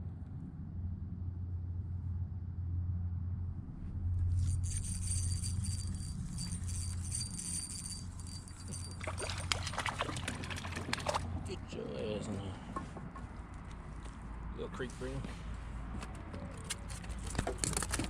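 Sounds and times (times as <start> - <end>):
steady low hum: 0.0 - 15.8
light metallic rattling: 4.2 - 11.4
thin high whine: 4.3 - 9.5.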